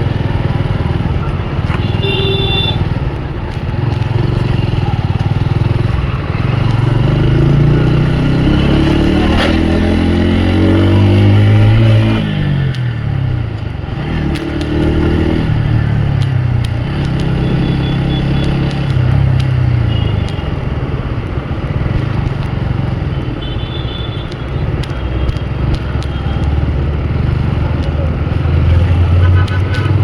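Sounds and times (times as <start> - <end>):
motorcycle engine revving: 0.0 - 23.5
wind and road noise: 0.0 - 30.0.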